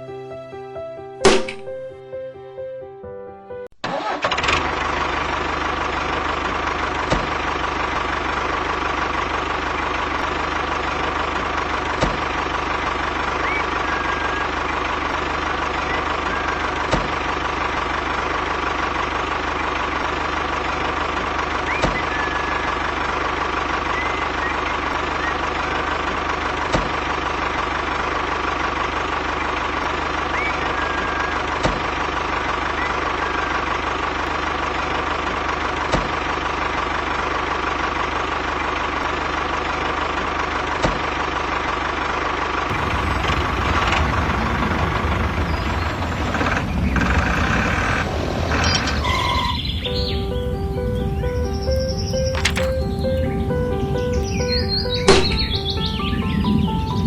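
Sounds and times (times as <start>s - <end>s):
sharp click: 1.3s - 1.7s
engine idling: 3.9s - 57.0s.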